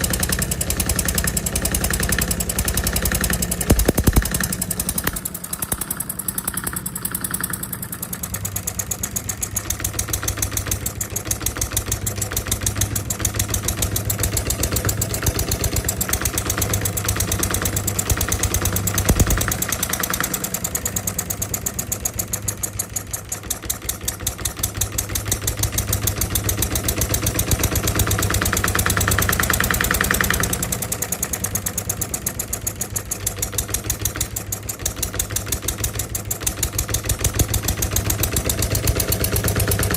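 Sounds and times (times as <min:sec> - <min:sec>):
model diesel engine running: 0:00.0 - 0:39.9
sharp knock: 0:03.6 - 0:05.2, 0:19.0 - 0:19.6.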